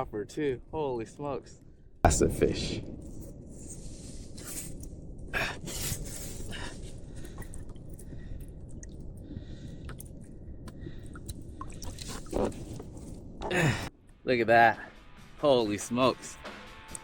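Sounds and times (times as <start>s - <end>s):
wind on microphone: 2.1s - 13.5s
sea: 4.2s - 13.5s.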